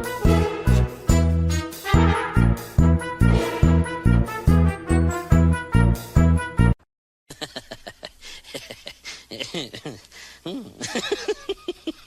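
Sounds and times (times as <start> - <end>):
music jingle: 0.0 - 6.4.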